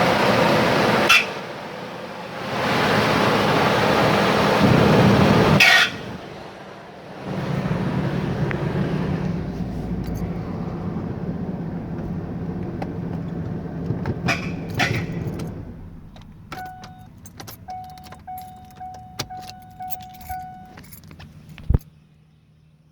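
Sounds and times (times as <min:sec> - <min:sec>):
engine running with grinding noise: 0:00.0 - 0:22.9
keys clicking and rattling: 0:14.5 - 0:21.9
dashboard warning chime: 0:14.7 - 0:21.7.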